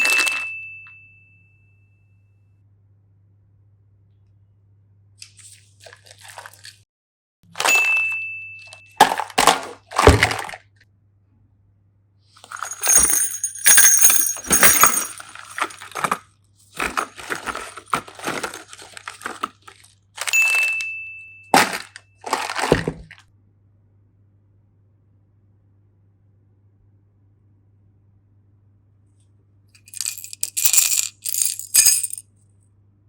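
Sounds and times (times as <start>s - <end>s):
foil and plastic crinkling: 9.0s - 10.6s, 14.5s - 20.8s, 21.6s - 23.2s.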